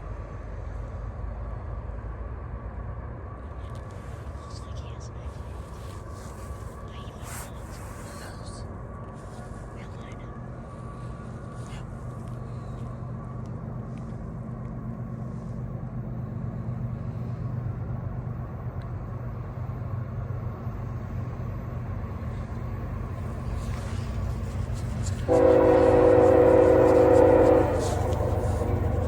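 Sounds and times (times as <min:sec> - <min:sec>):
diesel locomotive rumble: 0:00.0 - 0:29.0
locomotive air horn: 0:25.3 - 0:29.0.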